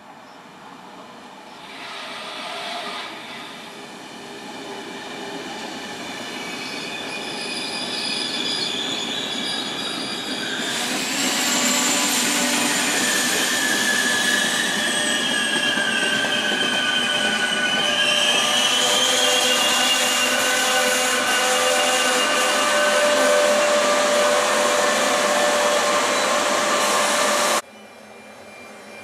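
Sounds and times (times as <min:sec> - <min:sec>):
train rolling past: 0:00.6 - 0:29.0
shrill squealing of running gear: 0:06.2 - 0:29.0.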